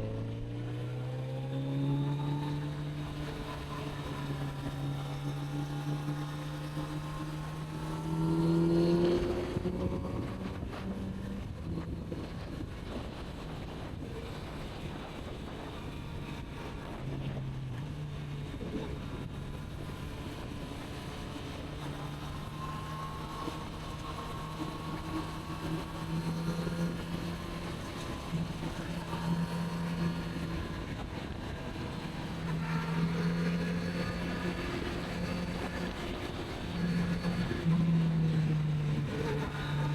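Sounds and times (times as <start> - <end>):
wind noise on microphone: 8.9 - 22.0, 30.2 - 32.6.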